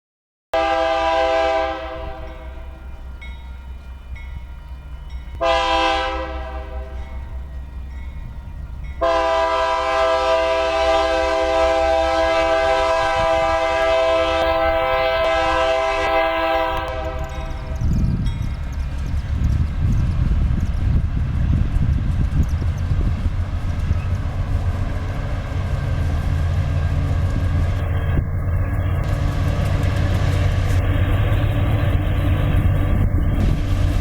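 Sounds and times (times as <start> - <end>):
locomotive air horn blasts: 0.6 - 2.8, 5.4 - 7.3, 9.0 - 17.8
locomotive rumble: 0.6 - 34.0.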